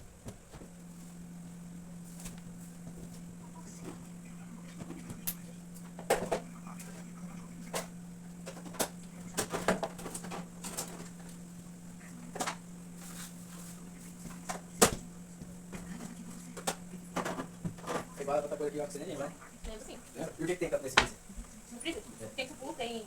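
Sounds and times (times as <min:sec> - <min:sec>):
steady low hum: 0:00.0 - 0:23.0
objects knocking and clattering: 0:16.6 - 0:18.2.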